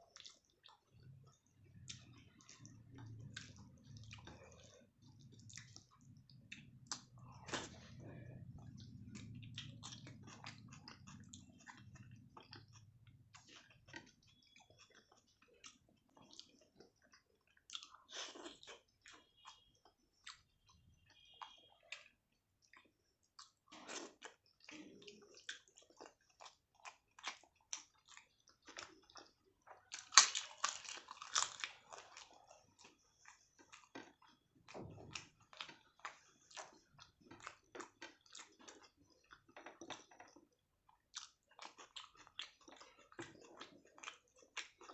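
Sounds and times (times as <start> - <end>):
wet chewing and mouth smacks: 0.0 - 44.9
crunchy bites: 29.9 - 32.0.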